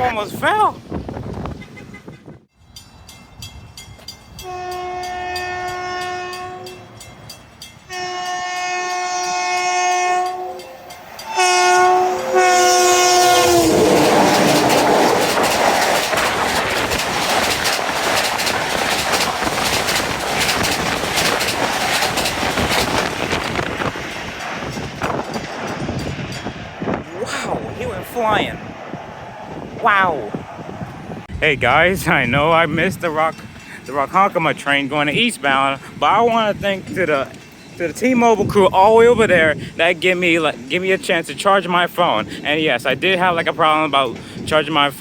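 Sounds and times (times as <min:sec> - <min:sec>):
train rushing past: 0:00.0 - 0:44.9
train horn blasts: 0:04.4 - 0:06.8, 0:07.9 - 0:14.0
wheels clattering over rail joints: 0:12.8 - 0:27.0.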